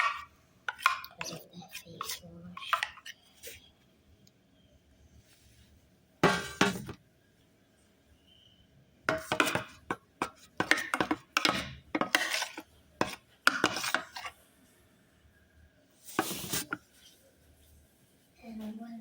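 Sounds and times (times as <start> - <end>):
utensil stirring slime: 0.0 - 3.7, 5.1 - 7.0, 9.1 - 14.5, 15.9 - 17.8.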